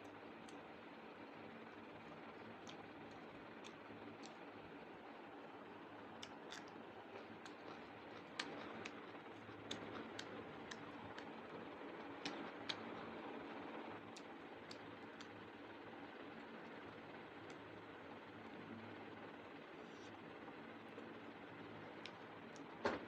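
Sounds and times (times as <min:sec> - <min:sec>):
steady low hum: 0:00.0 - 0:23.0
eating clicks: 0:02.4 - 0:04.5, 0:06.1 - 0:13.1.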